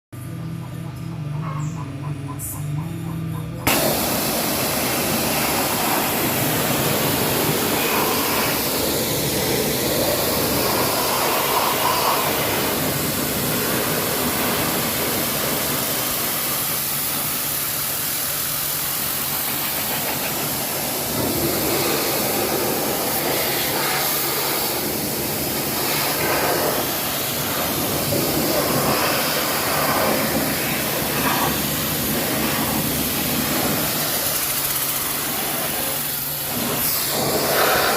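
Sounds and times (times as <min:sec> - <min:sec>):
motor and pump humming: 0:02.8 - 0:37.9
water jet hissing: 0:03.7 - 0:37.9.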